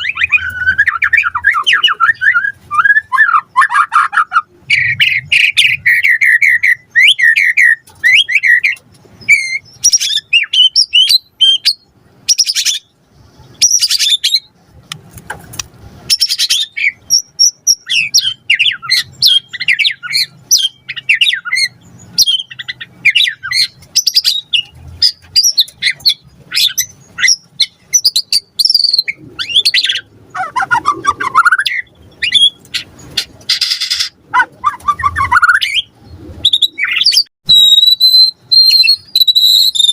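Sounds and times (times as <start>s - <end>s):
bird singing whistled phrases: 0.0s - 12.9s, 16.1s - 32.6s, 33.5s - 39.9s.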